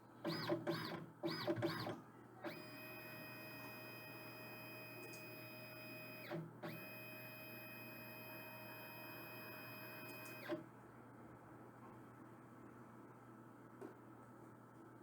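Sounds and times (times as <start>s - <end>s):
printer motor whine: 0.2s - 1.9s, 2.5s - 10.6s.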